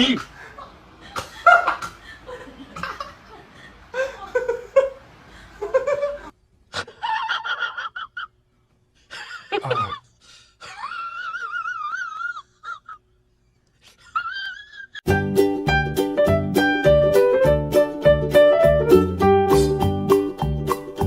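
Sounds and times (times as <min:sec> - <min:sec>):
laughter: 0:00.3 - 0:05.0, 0:05.6 - 0:08.4, 0:09.0 - 0:13.2, 0:13.8 - 0:15.0.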